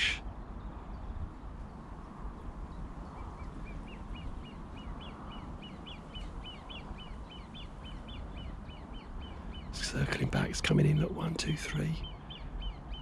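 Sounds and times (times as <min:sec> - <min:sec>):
steady low rumble: 0:09.2 - 0:12.0.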